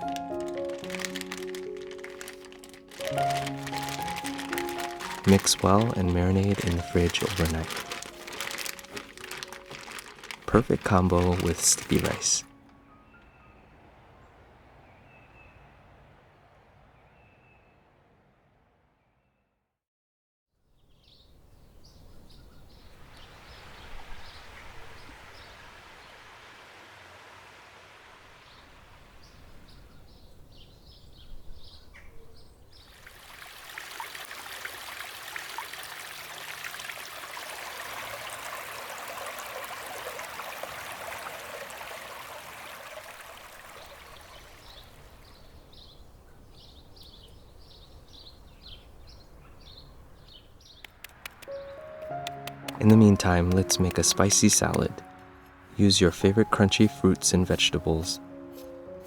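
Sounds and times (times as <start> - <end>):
running water rushing: 0.0 - 12.6, 23.0 - 29.3, 32.9 - 45.5, 50.8 - 58.1
birds chirping: 0.0 - 17.9, 20.8 - 26.5, 28.4 - 33.0, 41.8 - 59.0.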